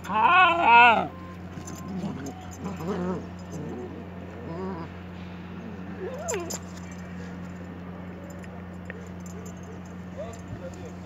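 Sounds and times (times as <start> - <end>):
dog whining: 0.0 - 5.0, 5.6 - 6.6
steady low hum: 0.0 - 11.0.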